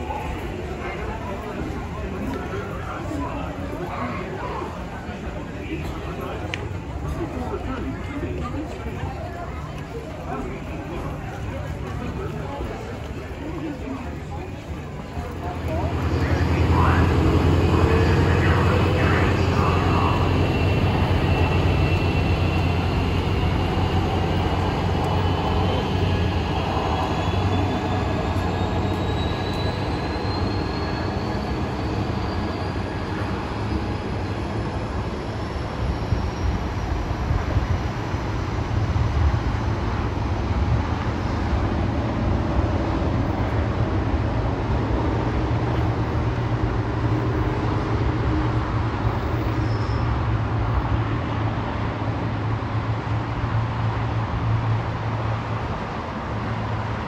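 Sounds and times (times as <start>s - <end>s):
train rumbling: 0.0s - 57.0s
train whine rising in pitch: 15.3s - 37.5s.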